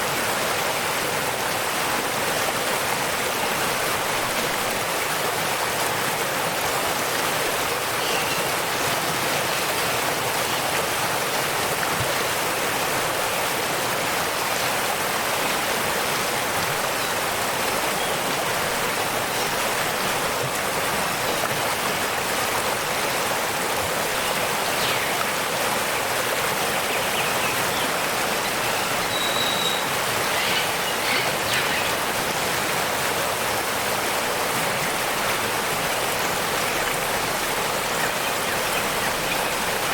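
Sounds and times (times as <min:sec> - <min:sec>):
waterfall rushing: 0:00.0 - 0:39.9
faint bird chirps: 0:28.7 - 0:32.0.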